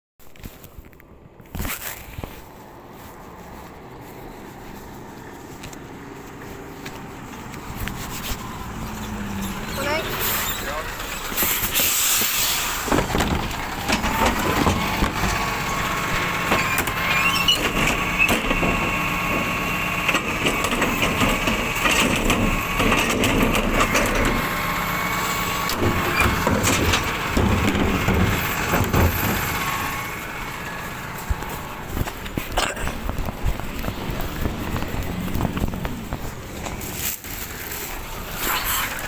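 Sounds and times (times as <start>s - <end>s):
rubbish truck whine: 1.8s - 39.0s
clattering knocks and crushing: 11.0s - 24.8s, 25.6s - 38.2s.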